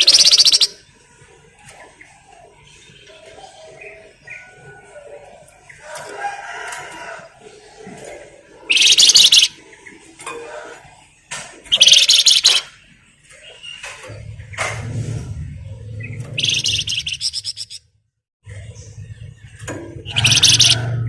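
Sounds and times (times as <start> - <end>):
songbird chattering trill: 0.0 - 0.8, 8.7 - 9.6, 11.7 - 12.7, 16.2 - 17.8, 20.0 - 20.8
soft lower bird calls: 0.0 - 5.8, 7.6 - 14.7, 15.7 - 17.9, 18.5 - 21.0.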